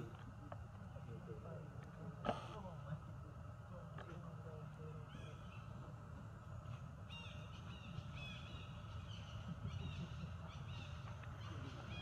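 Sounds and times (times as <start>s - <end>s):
steady low rumble: 0.0s - 12.0s
bird chirping: 7.0s - 12.0s.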